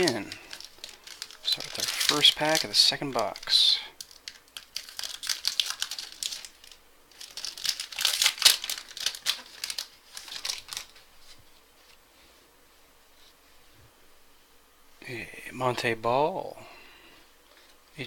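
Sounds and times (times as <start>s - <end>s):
wrapper tearing and crinkling: 0.0s - 11.1s.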